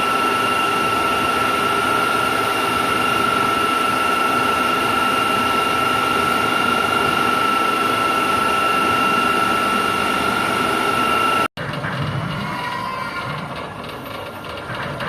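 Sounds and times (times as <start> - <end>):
high-pitched machine whine: 0.0 - 11.5
heavy machinery running: 0.0 - 15.0.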